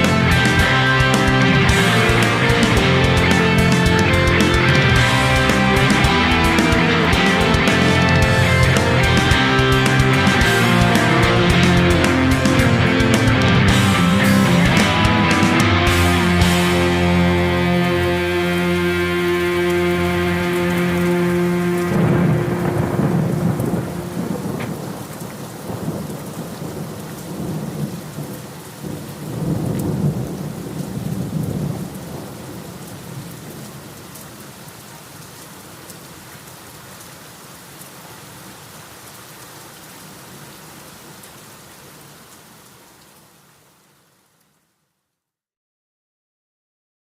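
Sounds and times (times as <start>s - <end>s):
band chord ringing: 0.0s - 24.6s
thunder rolling: 0.0s - 33.8s
steady rain: 0.0s - 45.3s.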